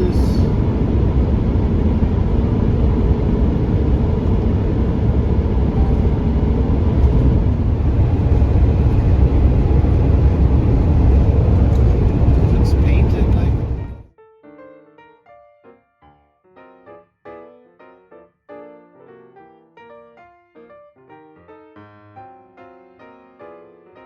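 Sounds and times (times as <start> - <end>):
vehicle road and engine noise: 0.0 - 14.0.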